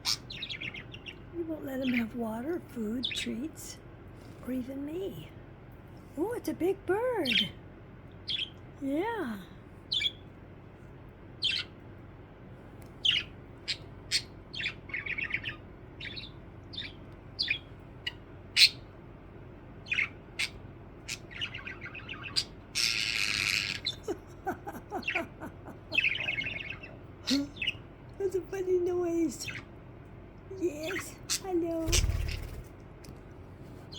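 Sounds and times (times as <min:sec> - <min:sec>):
budgerigar chirping: 0:00.0 - 0:01.2, 0:08.2 - 0:08.6, 0:09.9 - 0:10.2, 0:11.4 - 0:11.8, 0:13.0 - 0:18.9, 0:19.8 - 0:24.1, 0:25.9 - 0:27.8
budgerigar raspy squawk: 0:19.9 - 0:24.0.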